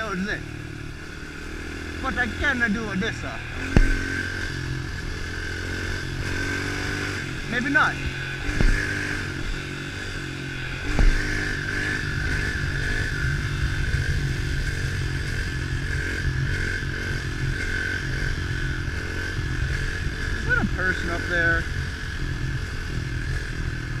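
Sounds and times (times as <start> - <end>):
pit bike engine running: 0.0 - 24.0
single thump: 3.7 - 4.1, 8.5 - 8.9, 10.9 - 11.2.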